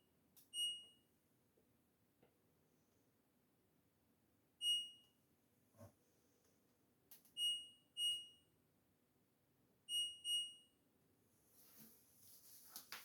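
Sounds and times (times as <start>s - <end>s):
washing machine panel beeps: 0.5s - 1.0s, 4.6s - 5.1s, 7.3s - 8.4s, 9.9s - 10.8s.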